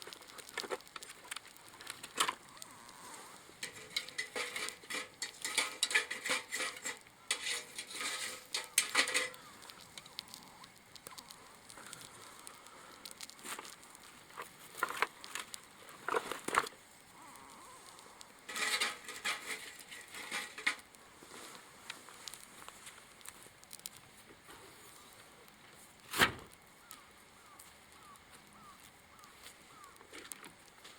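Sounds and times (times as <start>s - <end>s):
clattering and clicking handling: 3.6s - 10.2s, 14.4s - 16.7s, 18.5s - 20.9s.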